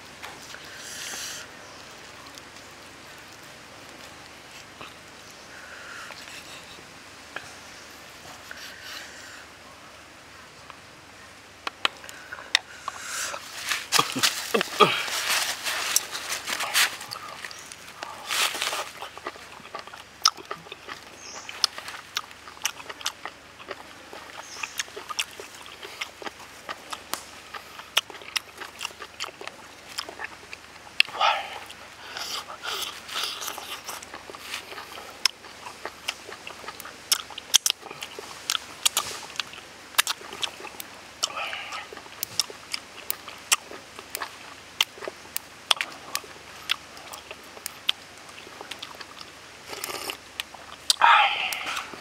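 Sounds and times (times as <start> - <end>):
chewing with wet mouth clicks: 15.9 - 52.0
breathy slurping: 49.7 - 50.2, 50.9 - 52.0.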